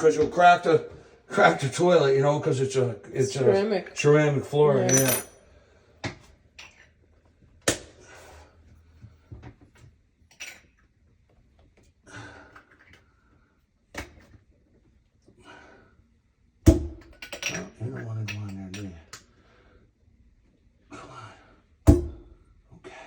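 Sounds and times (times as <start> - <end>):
tools clicking and knocking: 4.9 - 5.3.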